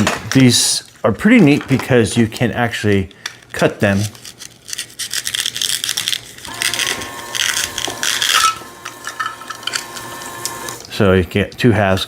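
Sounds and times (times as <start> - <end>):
velcro tearing apart: 4.0 - 8.4.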